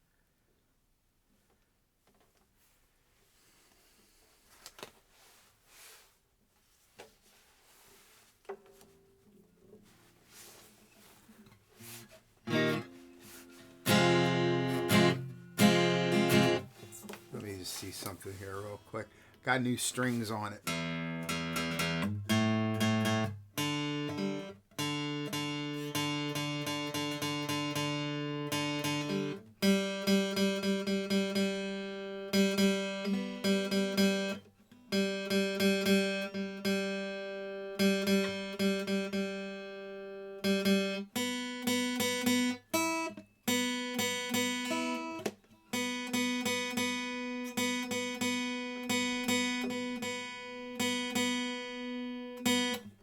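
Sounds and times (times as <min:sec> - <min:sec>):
acoustic guitar being tuned: 0:07.0 - 0:53.0.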